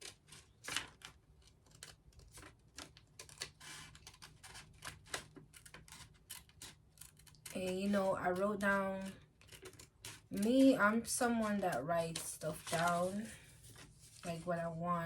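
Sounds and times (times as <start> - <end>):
paper clicking and rustling: 0.0 - 14.5.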